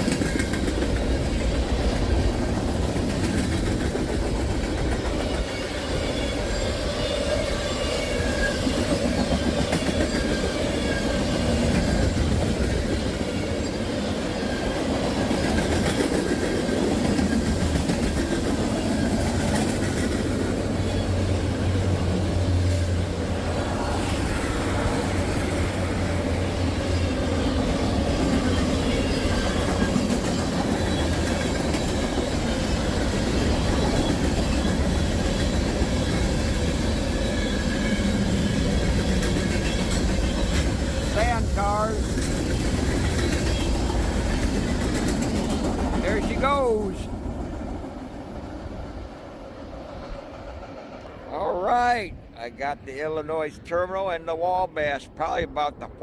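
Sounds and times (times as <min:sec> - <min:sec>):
train cars rumbling: 0:00.0 - 0:56.0
wheels clattering over rail joints: 0:24.6 - 0:46.4.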